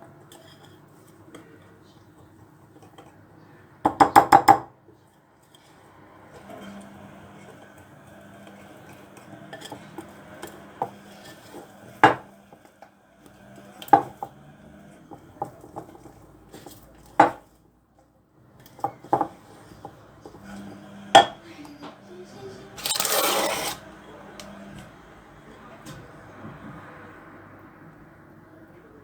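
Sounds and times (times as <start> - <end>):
dishes and cutlery clinking: 0.3 - 1.5, 22.8 - 23.8.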